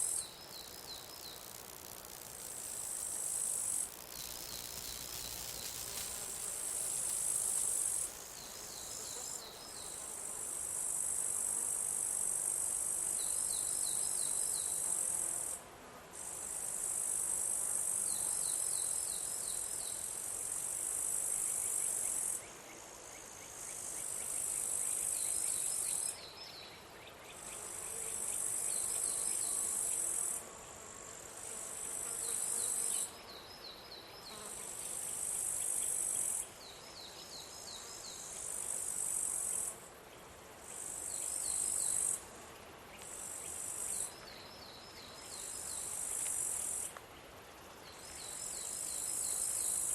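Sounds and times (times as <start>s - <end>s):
high-pitched insect trill: 0.0s - 15.6s, 48.0s - 49.9s
lower insect chirps: 0.0s - 15.6s, 40.7s - 42.2s, 42.9s - 47.0s, 47.9s - 49.9s.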